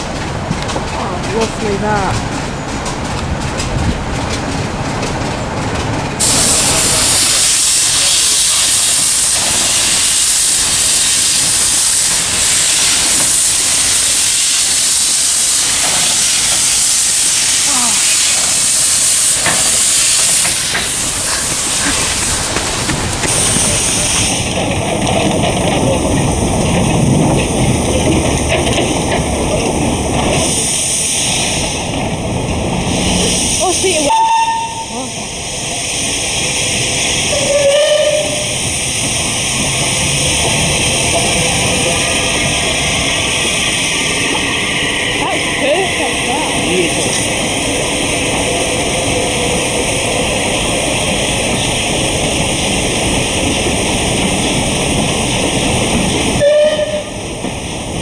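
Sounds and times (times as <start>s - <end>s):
steam locomotive venting steam: 3.6s - 58.0s
high hiss: 6.2s - 22.6s.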